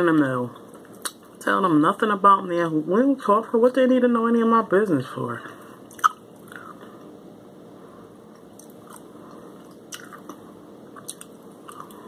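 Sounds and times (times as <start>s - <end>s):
wet mouth clicks: 1.0s - 1.3s, 5.9s - 6.8s, 11.0s - 12.0s
person chewing: 5.9s - 6.9s, 8.3s - 12.0s.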